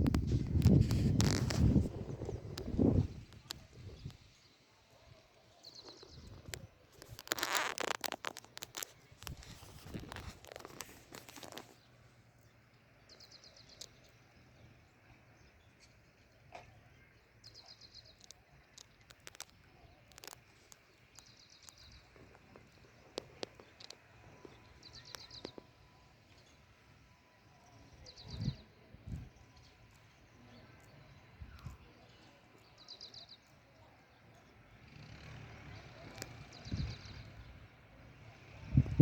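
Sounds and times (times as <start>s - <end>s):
close rustling and clicking: 0.0s - 4.3s, 5.6s - 14.3s, 17.6s - 26.5s, 34.9s - 37.3s
bird chirping: 0.0s - 34.6s.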